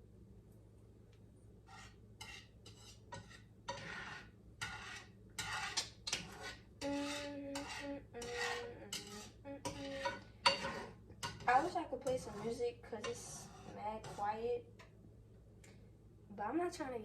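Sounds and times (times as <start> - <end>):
utensil scraping a pan: 1.6 - 14.5.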